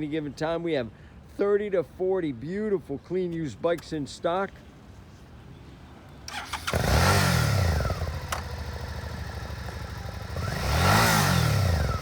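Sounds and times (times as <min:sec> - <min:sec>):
motorcycle engine starting and revving: 0:06.3 - 0:12.0.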